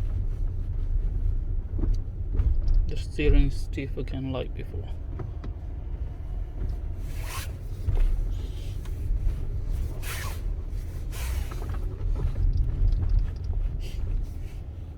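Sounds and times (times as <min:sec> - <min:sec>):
low cabin rumble: 0:00.0 - 0:14.9
steering wheel rubbing and scraping: 0:04.7 - 0:14.9.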